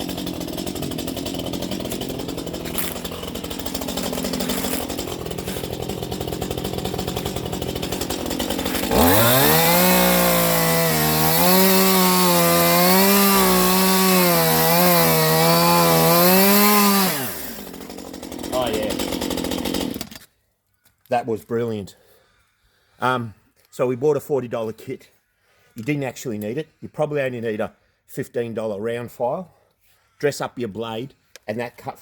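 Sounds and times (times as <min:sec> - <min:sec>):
chainsaw running: 0:00.0 - 0:20.3.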